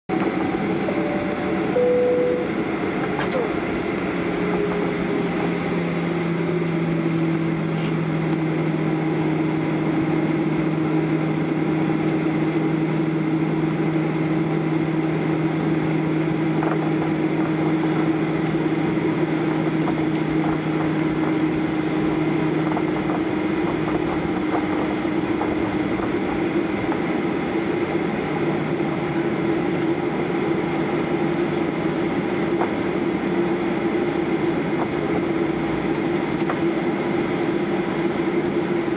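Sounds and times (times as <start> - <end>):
low hums: 0.1 - 27.8
aircraft engine drone: 0.1 - 38.9
rushing air noise in cabin: 0.1 - 38.9.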